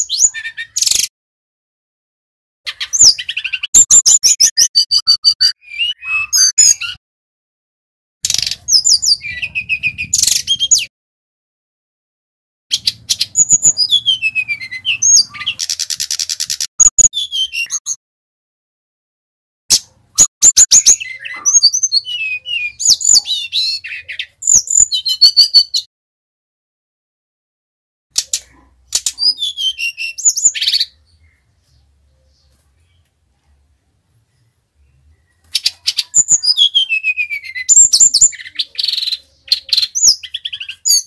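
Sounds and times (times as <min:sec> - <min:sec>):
buzzy bird trill: 0:02.7 - 0:07.0, 0:12.7 - 0:18.0, 0:19.7 - 0:25.9
flycatcher singing: 0:12.8 - 0:18.0.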